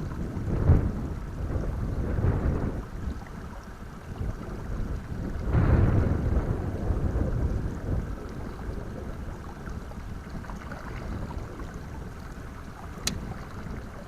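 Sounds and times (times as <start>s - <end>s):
wind buffeting microphone: 0.0s - 14.0s
sharp click: 13.0s - 13.2s.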